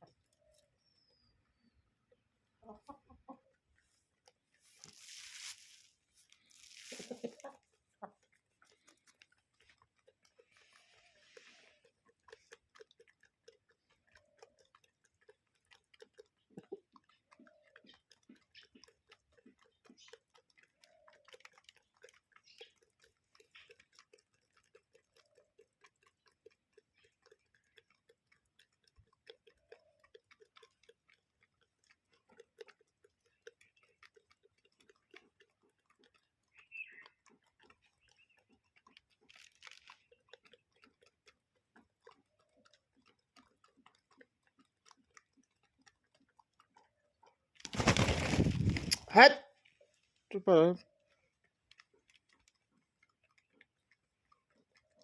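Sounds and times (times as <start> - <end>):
soft low chicken clucks: 0.0 - 50.0, 50.8 - 55.0
chickens pecking at feed: 0.0 - 55.0
rustle: 4.6 - 7.6, 10.4 - 11.8, 47.6 - 49.2.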